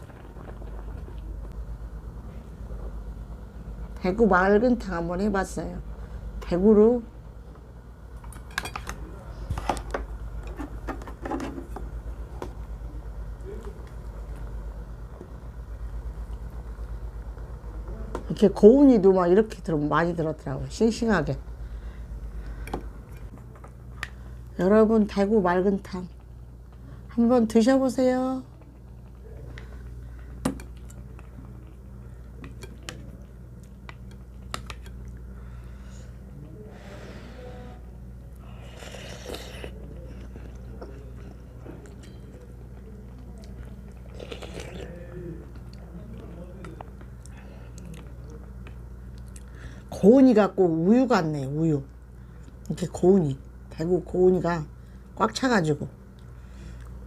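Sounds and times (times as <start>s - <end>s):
steady low hum: 0.0s - 57.0s
chewing and sipping: 28.5s - 35.5s, 38.2s - 49.6s.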